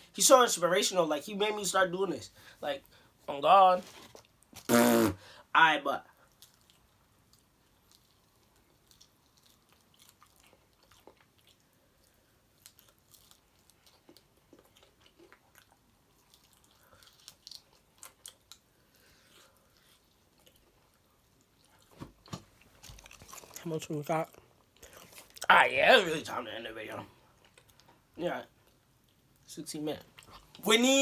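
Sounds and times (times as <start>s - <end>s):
person chewing food: 6.2s - 25.5s, 27.2s - 29.4s.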